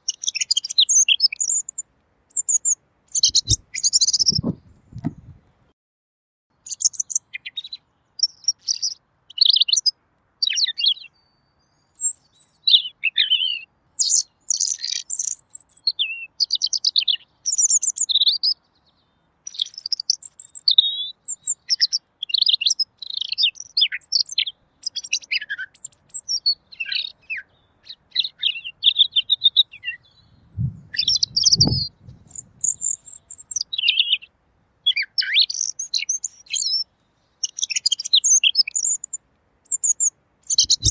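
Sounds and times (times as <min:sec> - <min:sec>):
songbird singing high phrases: 0:00.0 - 0:05.3, 0:06.5 - 0:40.9.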